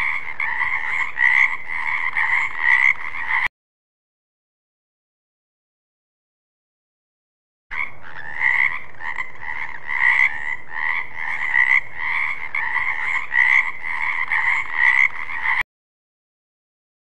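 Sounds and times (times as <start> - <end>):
frog croaking: 0.0 - 3.5, 7.7 - 15.6.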